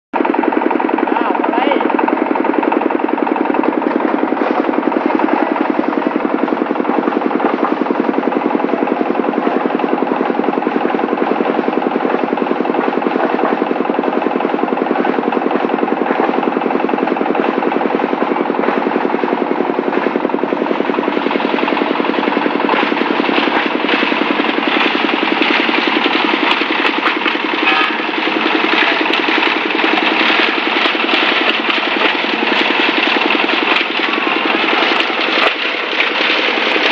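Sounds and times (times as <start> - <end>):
diesel engine pulsing: 0.2 - 36.9
shredder blades clattering: 1.6 - 36.9.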